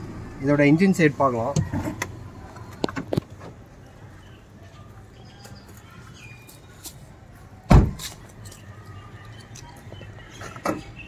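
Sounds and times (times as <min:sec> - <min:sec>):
car door shutting: 0:07.7 - 0:08.1.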